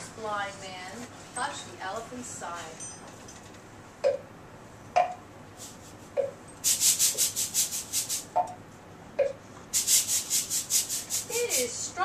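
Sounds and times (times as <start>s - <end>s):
hissy rubbing strokes: 5.6s - 8.3s, 9.8s - 11.8s.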